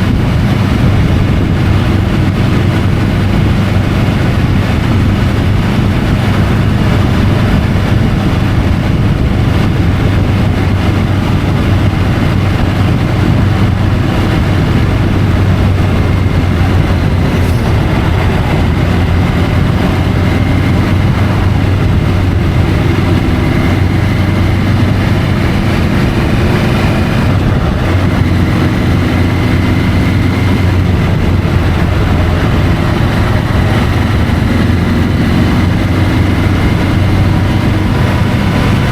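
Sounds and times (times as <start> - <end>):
motorcycle engine cruising: 0.0 - 38.9
wind and road noise: 0.0 - 38.9.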